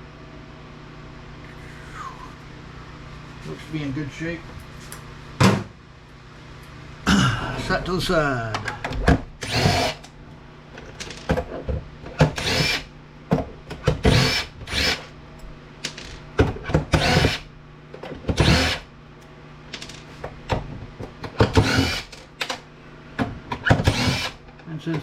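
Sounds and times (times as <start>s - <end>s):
steady low hum: 0.0s - 25.0s
power drill driving screws: 9.4s - 10.0s, 12.4s - 12.9s, 14.0s - 15.1s, 17.0s - 17.4s, 18.4s - 18.8s, 21.5s - 22.2s, 23.8s - 24.4s.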